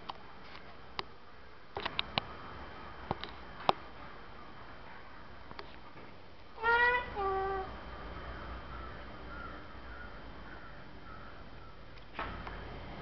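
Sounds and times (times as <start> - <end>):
parrot rising call: 6.6 - 7.7.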